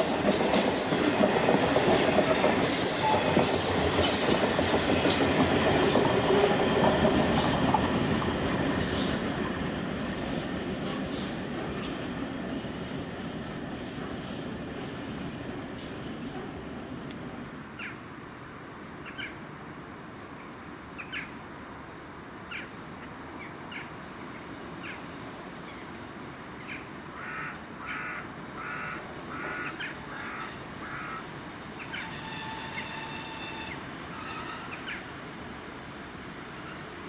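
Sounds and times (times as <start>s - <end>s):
bird calling: 26.6s - 35.1s.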